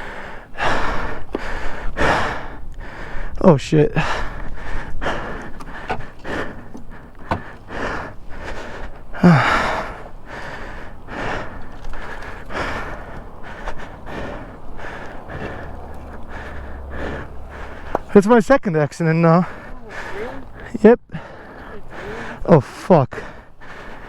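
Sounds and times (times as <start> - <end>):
man breathing hard: 0.0 - 18.3, 19.2 - 24.0
man groaning: 9.2 - 9.8.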